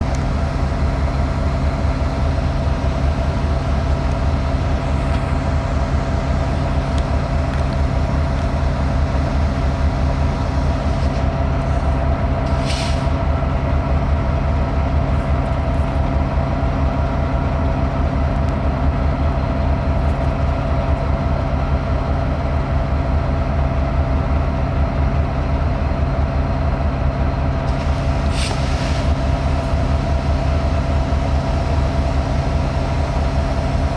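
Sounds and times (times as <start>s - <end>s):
locomotive engine idling: 0.0s - 33.9s
short hiss: 12.4s - 13.3s, 27.7s - 29.7s.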